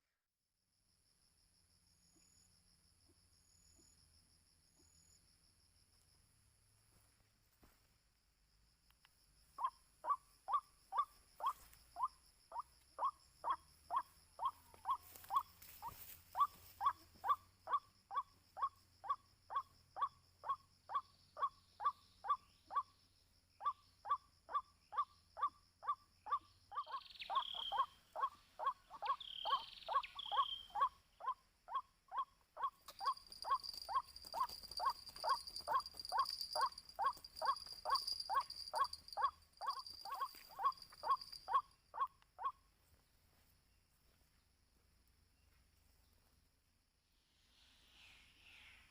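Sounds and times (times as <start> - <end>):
insects droning: 0.7 - 48.9.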